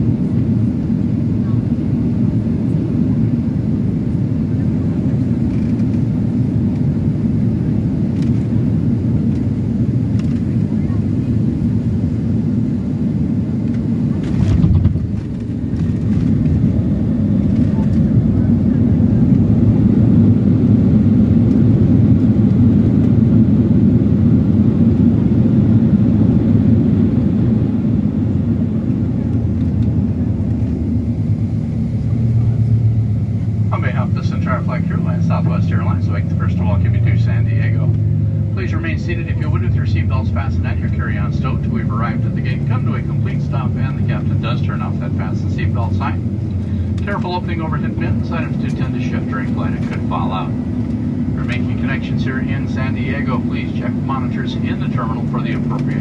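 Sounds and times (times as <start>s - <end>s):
jet cabin rumble: 0.0s - 56.0s.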